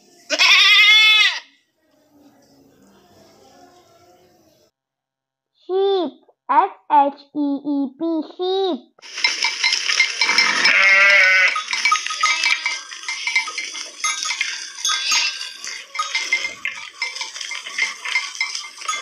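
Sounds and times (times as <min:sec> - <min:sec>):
sheep bleating: 0:00.3 - 0:01.6, 0:10.4 - 0:11.6, 0:14.8 - 0:15.6
sheep bells clinking: 0:09.0 - 0:19.0.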